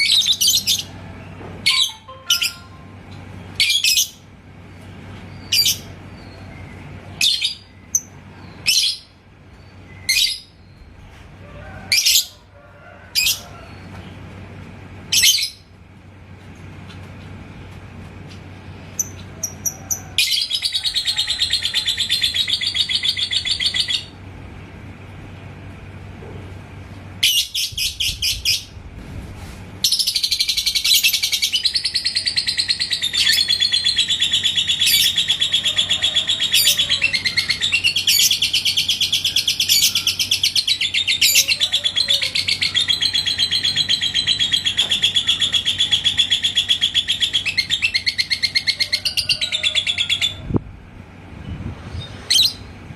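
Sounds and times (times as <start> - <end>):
lovebird chattering trill: 1.7 - 2.8, 19.0 - 24.1, 29.9 - 50.4.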